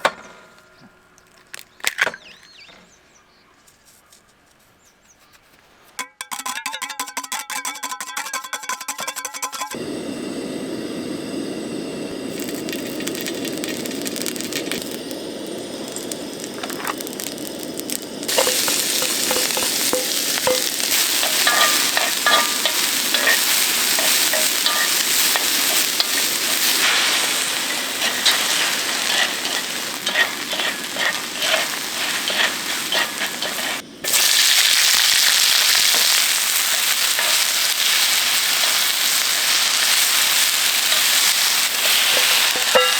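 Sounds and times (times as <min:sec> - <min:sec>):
food sizzling on a grill: 0:09.2 - 0:42.9.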